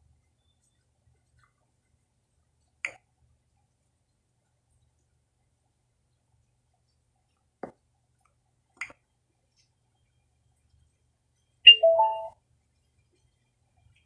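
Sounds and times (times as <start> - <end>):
rising three-tone prompt: 11.7 - 12.3.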